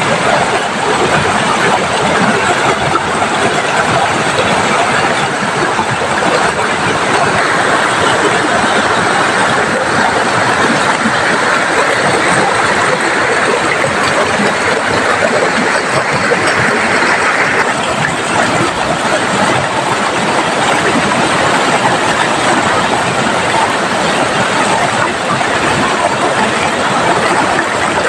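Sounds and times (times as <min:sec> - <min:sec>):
fast-flowing river: 0:00.0 - 0:28.0
heavy rain pouring: 0:00.0 - 0:28.0.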